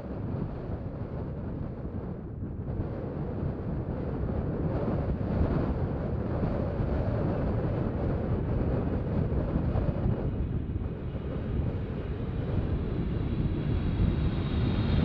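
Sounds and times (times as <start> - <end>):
wind buffeting microphone: 0.0 - 15.0
jet engines rumbling: 5.9 - 15.0.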